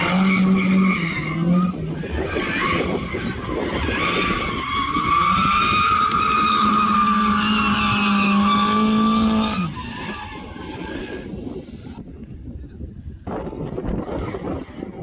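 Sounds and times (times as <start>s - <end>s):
tyres skidding: 0.0s - 11.8s
car engine revving high: 3.4s - 9.8s.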